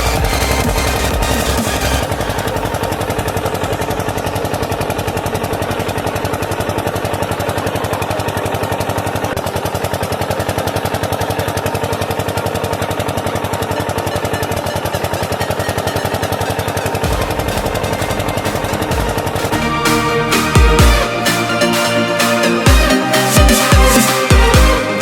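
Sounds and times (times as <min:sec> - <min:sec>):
small motor rattling: 0:00.0 - 0:19.5.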